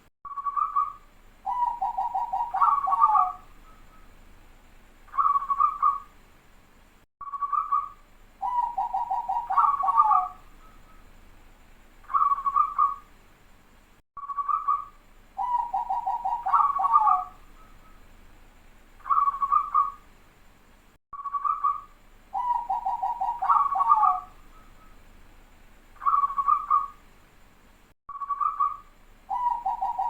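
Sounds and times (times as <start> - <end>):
dove cooing: 0.6 - 3.5, 5.2 - 6.1, 8.4 - 10.4, 12.1 - 13.0, 15.4 - 18.0, 19.1 - 20.0, 21.4 - 24.7, 26.0 - 27.0, 28.4 - 30.0.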